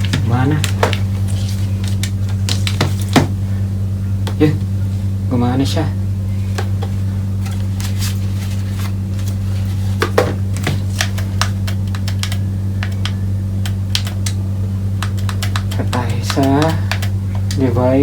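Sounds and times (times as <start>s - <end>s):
low electrical hum: 0.0s - 18.0s
sharp clicks and taps: 10.0s - 14.4s, 15.0s - 17.6s.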